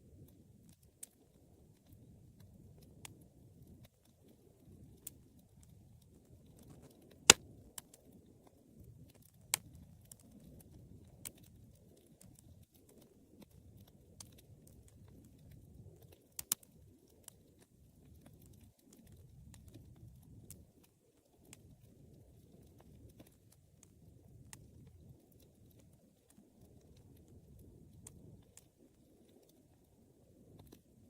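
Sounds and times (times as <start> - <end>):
fire crackling and popping: 0.0 - 31.0
rumble of fire flames: 0.0 - 31.0.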